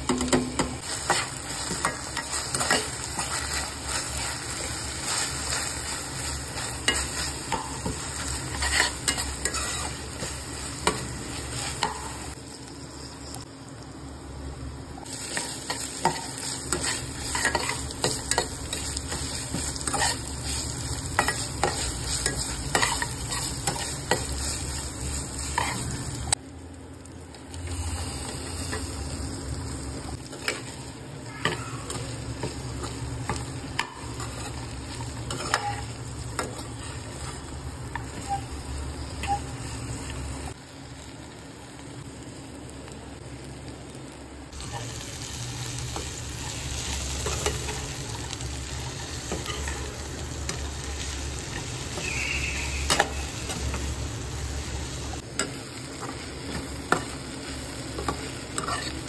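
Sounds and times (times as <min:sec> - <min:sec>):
food sizzling in hot oil: 0:00.0 - 0:59.0
spatula clicking and scraping: 0:15.4 - 0:24.6.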